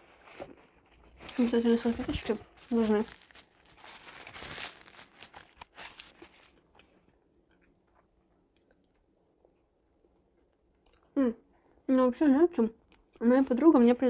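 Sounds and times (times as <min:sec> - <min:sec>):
paper napkin crinkling: 0:00.0 - 0:06.7
person chewing: 0:02.5 - 0:11.2.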